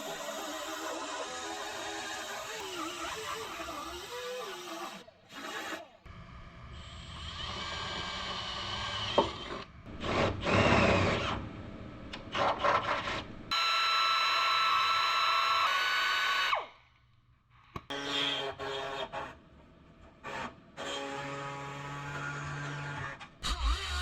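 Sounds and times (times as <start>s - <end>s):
small power tool whining: 0.0s - 6.0s.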